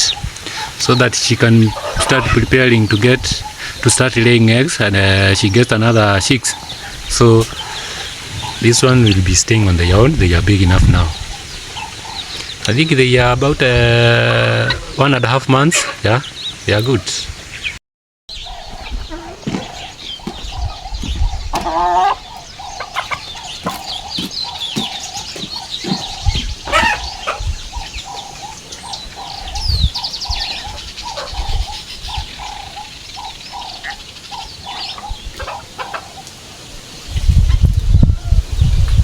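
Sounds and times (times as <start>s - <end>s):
young chickens clucking and peeping: 0.0s - 39.0s
low thumps: 18.7s - 21.8s.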